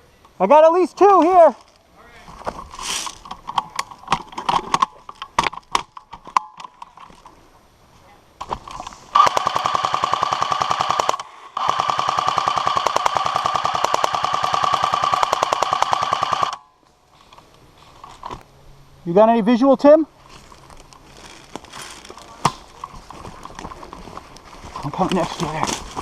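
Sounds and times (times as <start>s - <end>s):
airsoft gun firing full auto: 9.2s - 16.6s.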